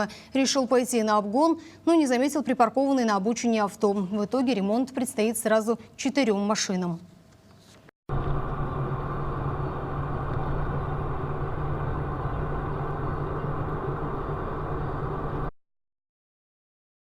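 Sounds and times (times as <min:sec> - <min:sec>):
road vehicle rumble: 0:08.1 - 0:15.5.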